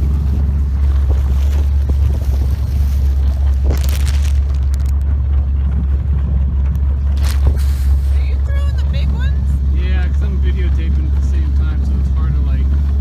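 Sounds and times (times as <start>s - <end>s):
wind noise: 0.0s - 8.4s
boat motor droning: 0.0s - 13.0s.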